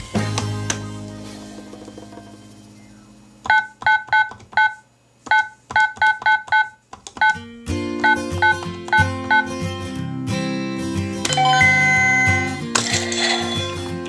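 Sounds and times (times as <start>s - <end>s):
short electronic beeps: 11.3s - 12.6s
chime: 11.3s - 13.9s.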